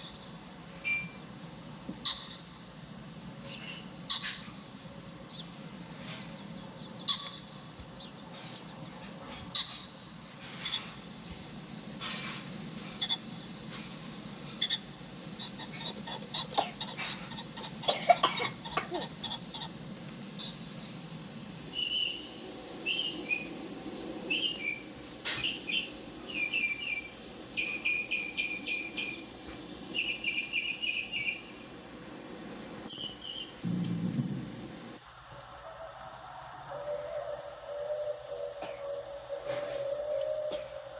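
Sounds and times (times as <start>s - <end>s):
bird calls and clicks: 1.9s - 34.6s
rapid bird chirps: 12.4s - 17.9s, 18.5s - 35.0s.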